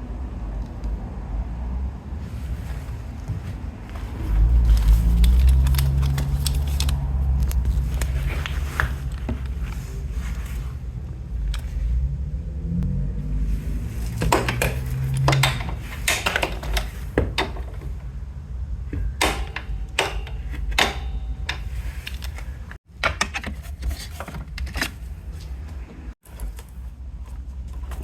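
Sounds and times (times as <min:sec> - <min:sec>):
steady low rumble: 0:00.0 - 0:22.8
metal tools clinking: 0:19.0 - 0:22.4.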